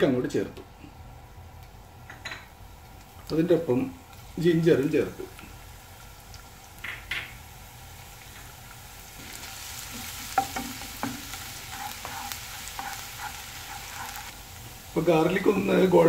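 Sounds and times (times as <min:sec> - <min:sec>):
garlic sizzling in oil: 0:01.4 - 0:16.0
wooden spatula scraping pan: 0:09.9 - 0:14.3.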